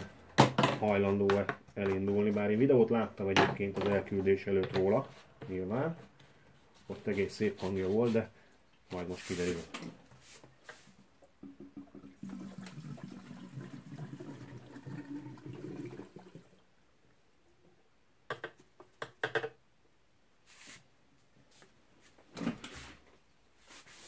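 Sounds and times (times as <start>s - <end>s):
fuel gurgling into tank: 11.4s - 16.6s.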